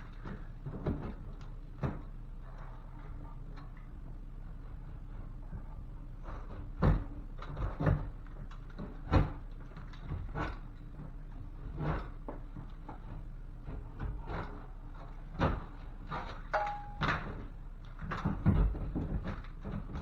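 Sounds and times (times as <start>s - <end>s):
steady low hum: 0.0s - 20.0s
knocks and thumps: 6.4s - 8.2s, 15.3s - 20.0s.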